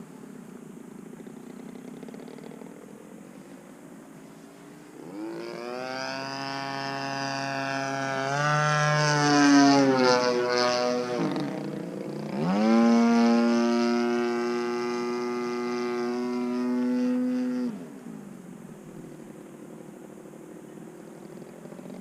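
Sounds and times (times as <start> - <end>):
model plane engine revving: 5.0 - 17.8.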